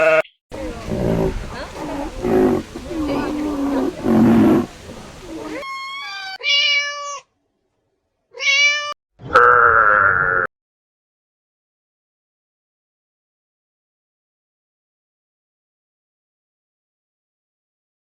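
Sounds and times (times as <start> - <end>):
high meow-like cries: 0.0 - 0.3, 5.6 - 7.3, 8.3 - 10.5
rough bleat-like animal calls: 0.0 - 4.8, 8.4 - 10.5.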